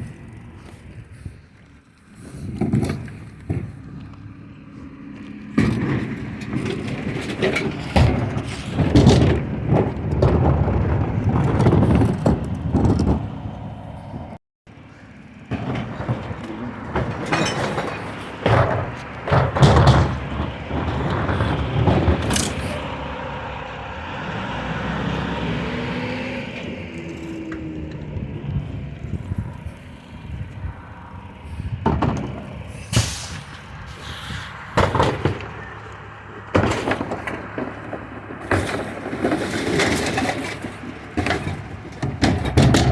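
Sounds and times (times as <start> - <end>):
truck engine running: 0.0 - 42.9
loud metal clanks and bangs: 5.5 - 13.3, 15.4 - 23.0, 31.6 - 33.6, 34.7 - 35.8, 36.5 - 42.9.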